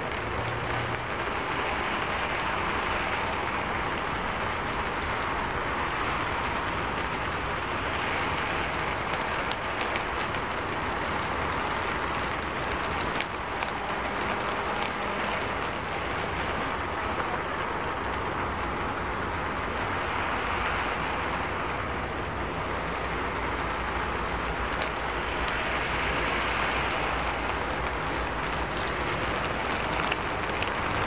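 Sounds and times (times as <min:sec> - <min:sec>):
heavy rain on street: 0:00.0 - 0:31.0
tyres on wet road: 0:00.0 - 0:31.0.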